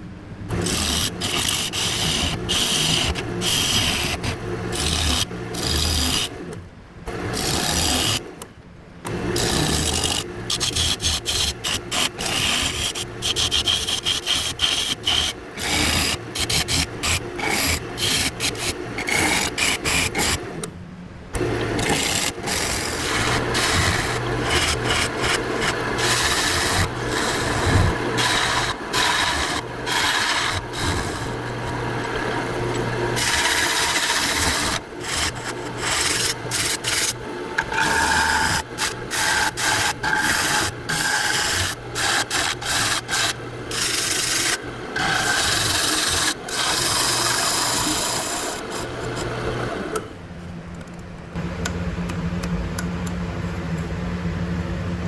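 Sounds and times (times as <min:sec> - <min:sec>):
lathe motor humming: 0:09.1 - 0:20.7, 0:21.3 - 0:55.0
gouge scraping wooden bowl: 0:21.8 - 0:49.4.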